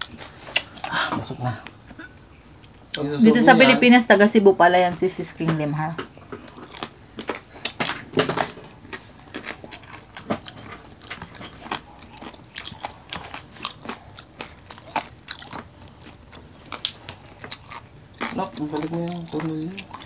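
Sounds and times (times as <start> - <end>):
crunchy food chewing: 6.0 - 20.0.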